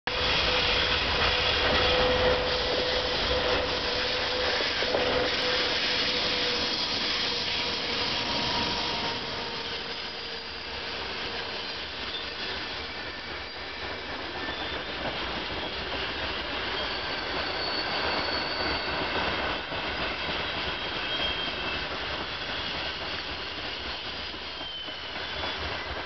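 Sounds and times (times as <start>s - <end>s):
electric locomotive hum: 0.1s - 18.7s
train wheels on rails: 0.1s - 26.0s.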